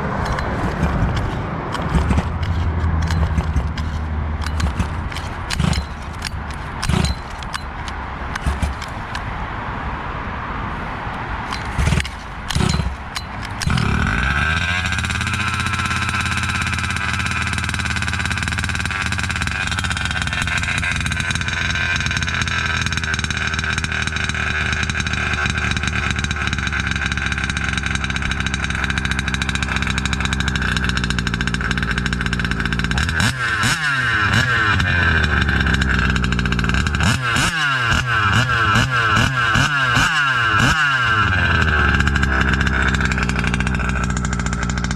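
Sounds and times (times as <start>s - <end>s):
two-stroke engine revving: 0.0s - 9.3s, 11.4s - 44.9s.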